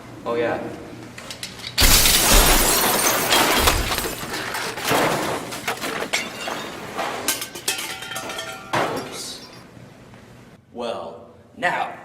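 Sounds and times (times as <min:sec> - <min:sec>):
glass pieces clattering: 0:01.6 - 0:09.7
glass shattering: 0:01.8 - 0:09.7.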